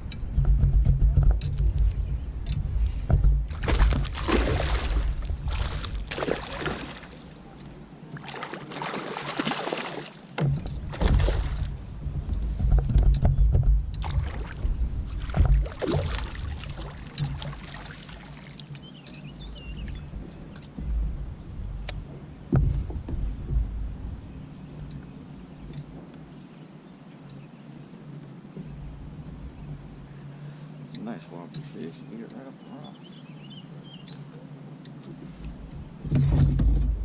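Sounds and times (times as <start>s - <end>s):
low rumble: 0.0s - 7.9s, 10.5s - 17.6s, 19.4s - 26.0s, 28.6s - 30.3s
kayak paddle splashing: 2.6s - 26.5s, 28.5s - 37.0s.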